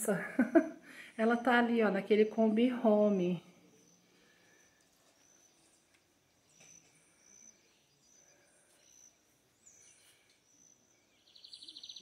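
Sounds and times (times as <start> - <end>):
high bird chirps: 3.8 - 12.0.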